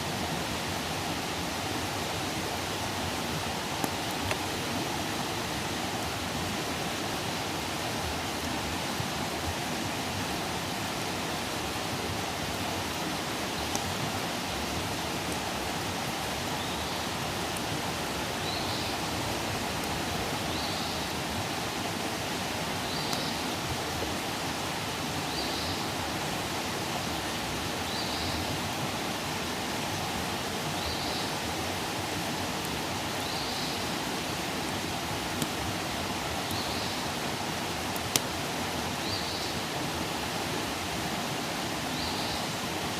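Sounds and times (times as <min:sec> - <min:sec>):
campfire hissing: 0:00.0 - 0:42.9
faint fire pops: 0:03.8 - 0:04.5.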